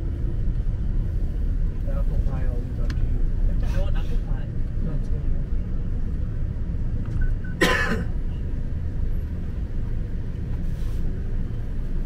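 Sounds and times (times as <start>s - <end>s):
person coughing: 7.6s - 8.1s.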